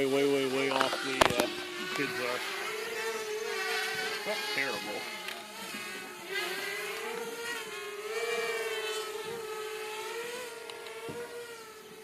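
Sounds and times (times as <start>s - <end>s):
model airplane motor buzzing: 0.0s - 12.0s.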